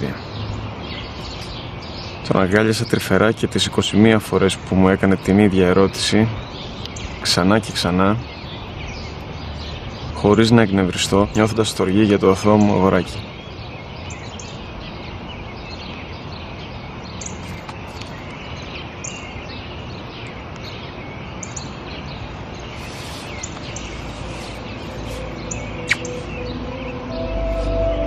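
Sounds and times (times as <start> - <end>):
outdoor background hiss: 0.0 - 28.0
small birds chirping: 0.0 - 28.0
low soft music: 23.9 - 28.0.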